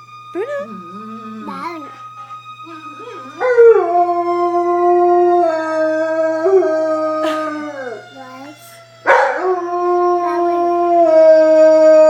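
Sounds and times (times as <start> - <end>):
fire truck sirens: 0.0 - 12.0
dog howling: 0.4 - 8.2, 9.0 - 12.0.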